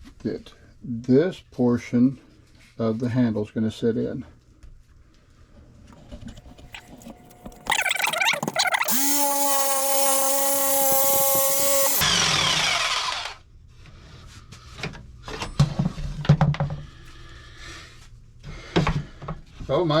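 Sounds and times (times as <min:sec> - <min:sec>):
power tool motor whine: 0:06.6 - 0:13.4.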